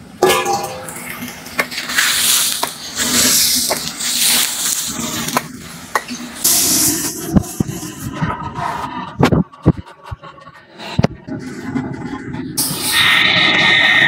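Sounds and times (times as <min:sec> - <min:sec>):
metal ladle scraping a wok: 0:00.2 - 0:05.4
pork sizzling in a wok: 0:00.2 - 0:07.7.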